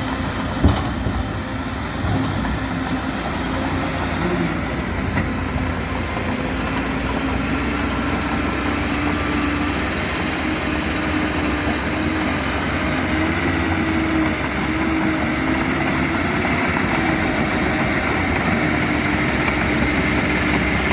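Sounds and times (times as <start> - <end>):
diesel engines rumbling: 0.0 - 20.9.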